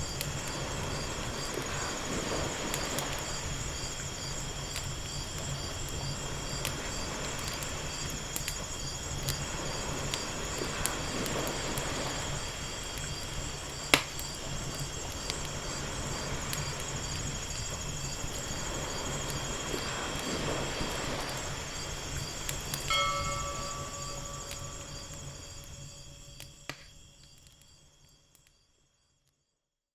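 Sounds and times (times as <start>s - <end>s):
ocean waves washing in: 0.0s - 4.3s, 9.4s - 13.9s, 15.5s - 25.8s
wood fire crackling and popping: 0.0s - 27.8s
high pulsing chirring: 22.9s - 26.1s.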